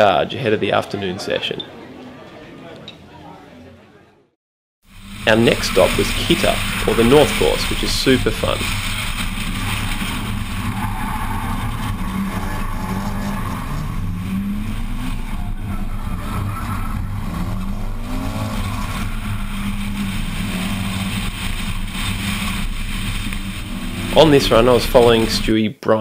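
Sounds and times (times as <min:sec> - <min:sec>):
car engine revving: 0:04.9 - 0:25.5.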